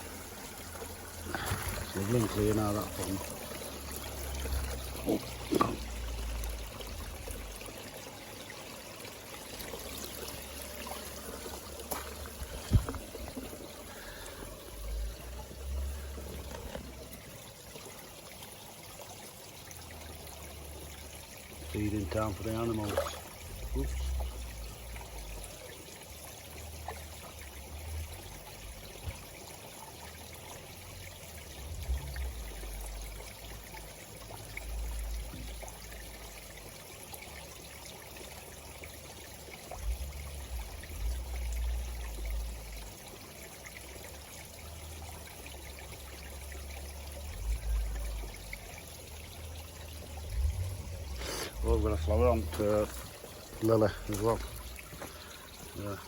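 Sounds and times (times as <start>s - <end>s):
waterfall splashing into pond: 0.0s - 56.0s
low rumbles: 49.9s - 56.0s.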